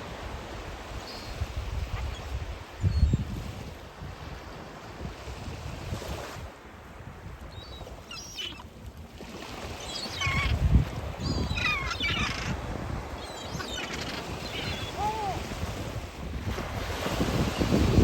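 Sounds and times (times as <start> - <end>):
gulls calling: 7.6 - 8.7, 9.8 - 15.6.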